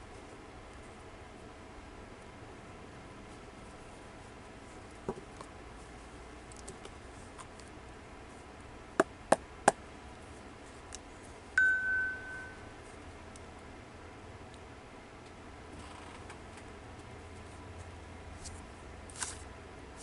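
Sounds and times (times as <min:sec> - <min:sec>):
altar bell ringing: 0:11.6 - 0:12.7.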